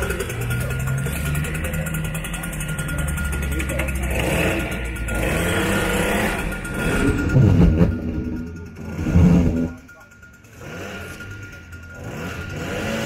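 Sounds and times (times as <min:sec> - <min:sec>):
pulse jet engine droning: 0:00.0 - 0:10.5.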